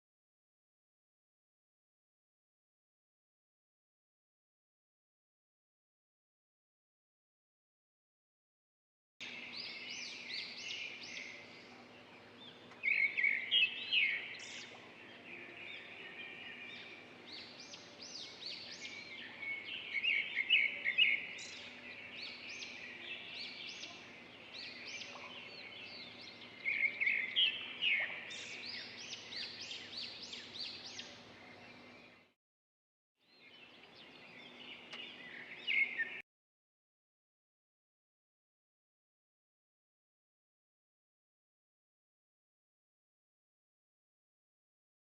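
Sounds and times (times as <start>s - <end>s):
small birds chirping and singing: 9.2s - 32.4s, 33.2s - 36.2s.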